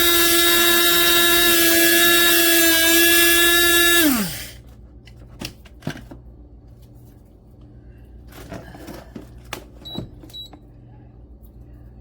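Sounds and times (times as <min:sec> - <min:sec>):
small electric motor whining: 0:00.0 - 0:04.6.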